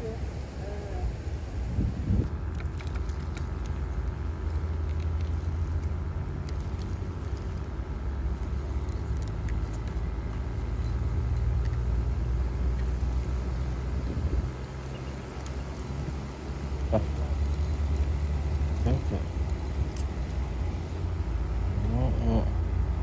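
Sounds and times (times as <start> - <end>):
vehicle engine running: 0.0 - 23.0
faint clicks and rattles: 2.2 - 21.2.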